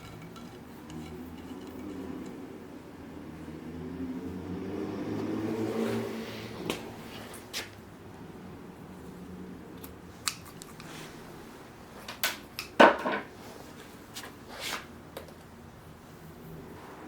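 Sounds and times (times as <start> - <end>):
tools clicking and knocking: 0.0 - 2.4.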